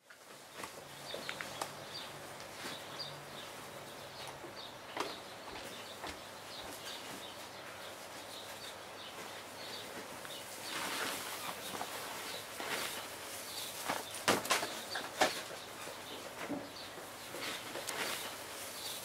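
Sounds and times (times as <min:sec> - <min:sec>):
small birds chirping: 0:00.1 - 0:19.0
rustle: 0:05.7 - 0:19.0.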